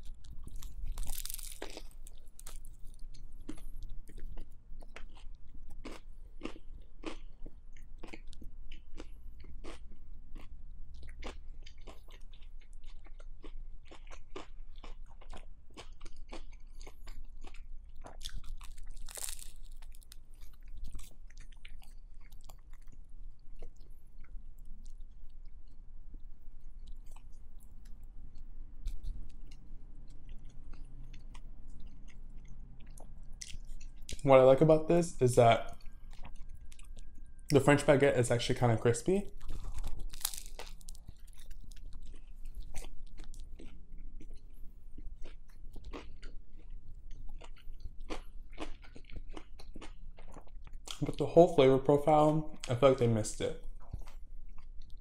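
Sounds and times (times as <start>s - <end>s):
crunchy bread chewing: 0.0s - 51.2s, 53.5s - 55.0s.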